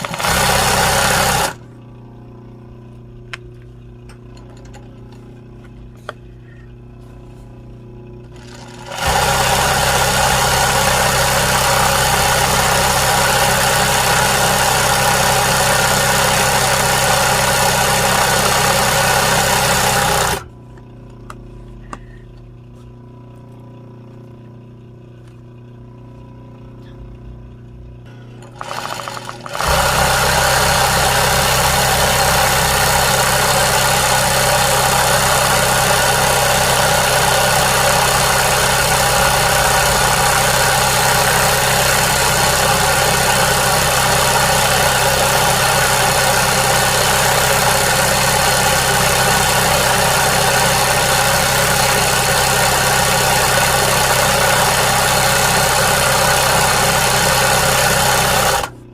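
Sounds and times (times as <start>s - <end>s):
loud mechanical noise with hum: 0.0s - 58.9s.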